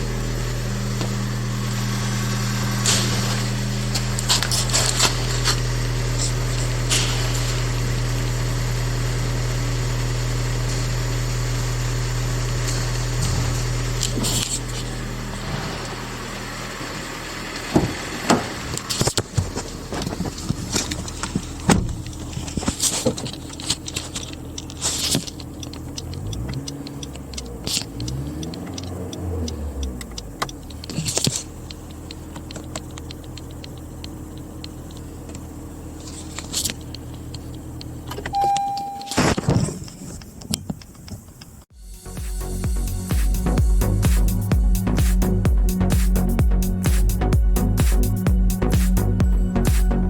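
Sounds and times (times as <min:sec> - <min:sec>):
car engine humming: 0:00.0 - 0:50.0
short beep: 0:38.3 - 0:39.3.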